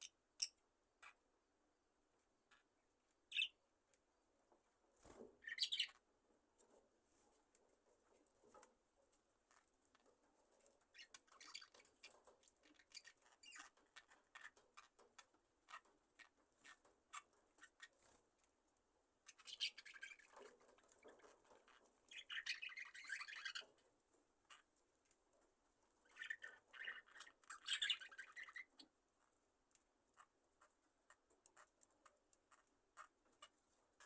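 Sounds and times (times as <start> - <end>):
soft bird chirping: 0.0 - 1.3, 2.4 - 3.6, 5.0 - 6.1, 9.5 - 18.2, 19.2 - 25.2, 25.9 - 34.0
birds clicking and scratching: 6.6 - 34.0.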